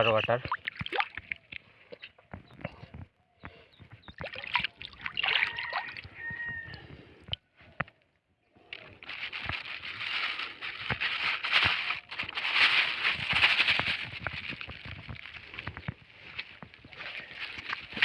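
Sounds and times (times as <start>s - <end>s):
plastic litter rustling and crackling: 8.8s - 18.0s.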